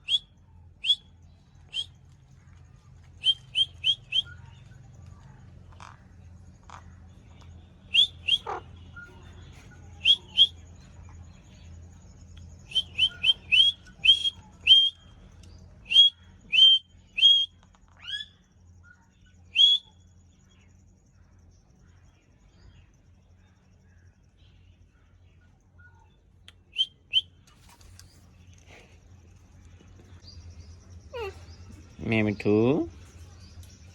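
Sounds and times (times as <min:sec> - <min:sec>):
parakeet chirping: 0:07.9 - 0:10.6, 0:12.6 - 0:15.0.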